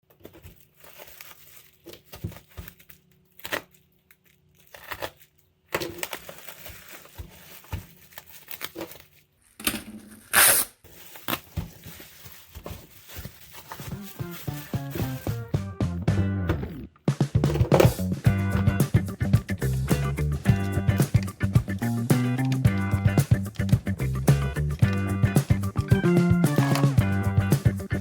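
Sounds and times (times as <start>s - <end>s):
music: 13.8s - 28.0s
handling clicks and knocks: 16.2s - 27.9s.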